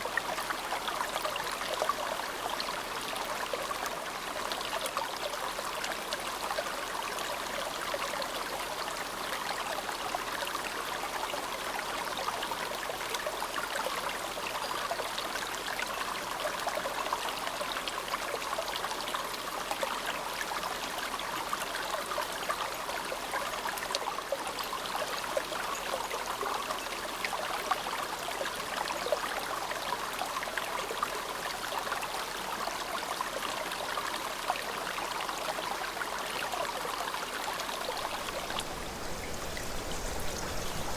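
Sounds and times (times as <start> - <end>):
river babbling: 30.8 - 40.9.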